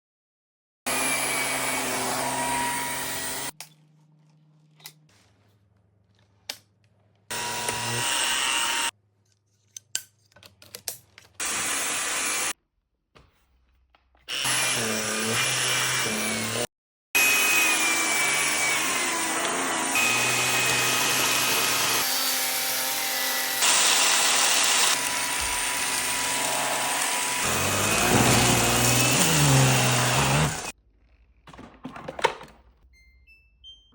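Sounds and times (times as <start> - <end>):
vacuum cleaner motor whine: 7.3 - 8.9, 17.2 - 30.7.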